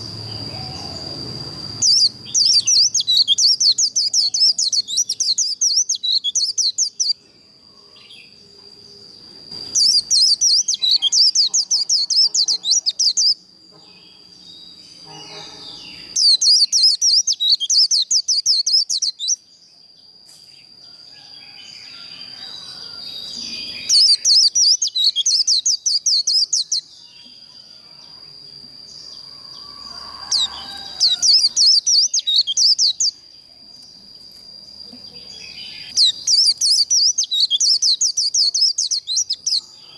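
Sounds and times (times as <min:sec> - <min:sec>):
bird chattering song: 0:00.0 - 0:07.2, 0:09.6 - 0:19.4, 0:23.3 - 0:27.3, 0:29.0 - 0:33.2, 0:34.8 - 0:39.9.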